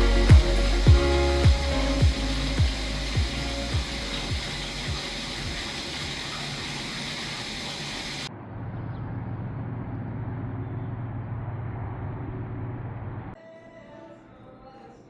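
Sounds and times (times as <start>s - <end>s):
churning water from jets: 0.0s - 8.3s
pump motor hum: 0.0s - 8.3s.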